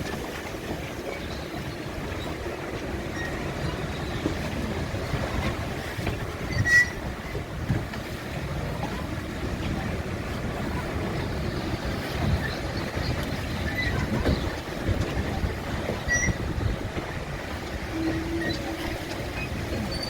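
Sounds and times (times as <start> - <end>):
strong gusting wind: 0.0 - 20.0
short high squeak: 6.5 - 7.0.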